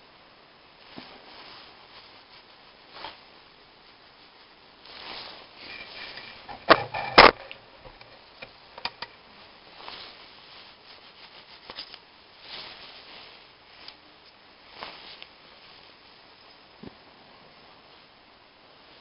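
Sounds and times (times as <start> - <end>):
soft rubbing: 4.2 - 7.2, 9.4 - 18.1.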